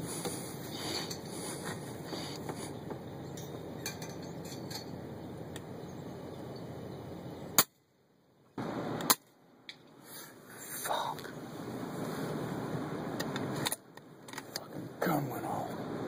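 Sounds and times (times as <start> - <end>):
outdoor background noise: 0.0 - 16.0
faint ticks and clinks: 2.4 - 5.8
very sharp crack: 7.6 - 7.8, 9.0 - 9.9.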